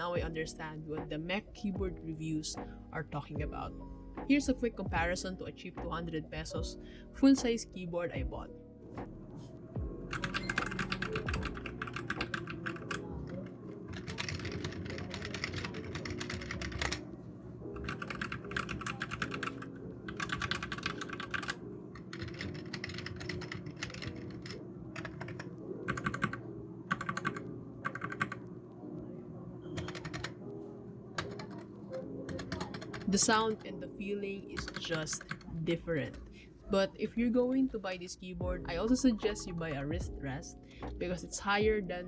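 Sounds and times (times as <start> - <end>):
keyboard typing clatter: 10.1 - 17.1, 17.8 - 28.5, 29.6 - 30.4, 31.1 - 33.7, 34.5 - 36.3.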